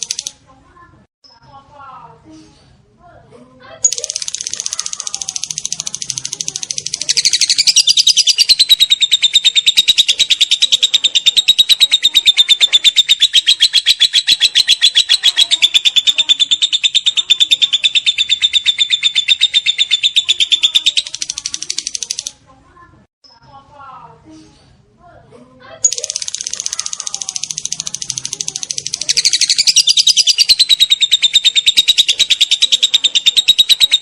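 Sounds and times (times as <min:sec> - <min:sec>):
lovebird chattering trill: 0:00.0 - 0:00.4, 0:03.8 - 0:22.3, 0:25.8 - 0:34.0.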